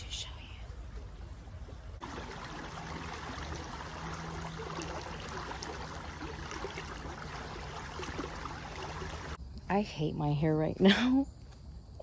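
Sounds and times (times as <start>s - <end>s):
creek water flowing: 0.8s - 9.4s.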